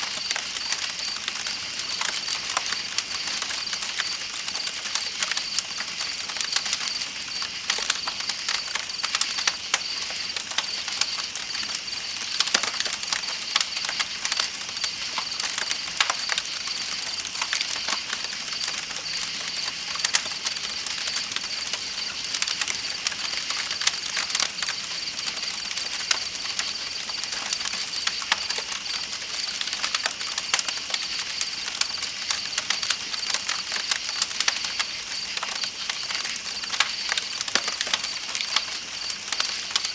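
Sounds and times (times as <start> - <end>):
campfire crackling and popping: 0.0 - 39.9
night insects chirping: 0.0 - 39.9.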